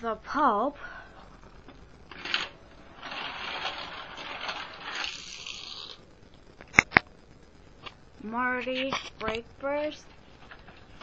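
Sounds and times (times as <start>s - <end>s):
toy car rattling down plastic track: 2.1s - 6.0s.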